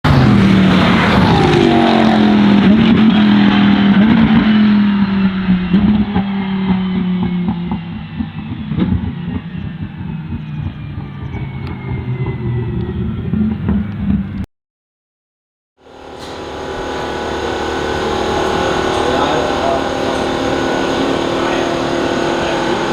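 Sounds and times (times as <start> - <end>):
race car engine: 0.0 - 14.5, 15.8 - 22.9.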